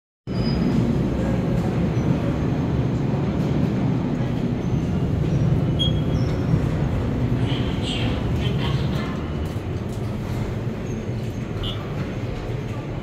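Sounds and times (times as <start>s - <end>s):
train rumbling: 0.3s - 13.0s.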